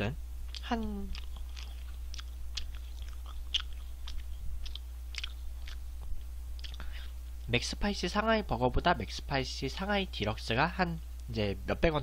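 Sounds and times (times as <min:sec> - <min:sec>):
person chewing with mouth open: 0:00.4 - 0:07.2.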